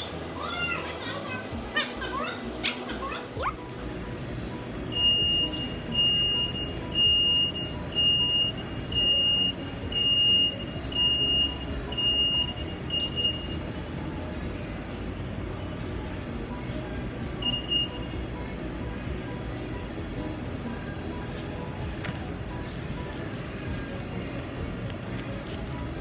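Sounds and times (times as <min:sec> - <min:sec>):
high electronic beeps: 0:04.8 - 0:13.9, 0:17.3 - 0:18.4.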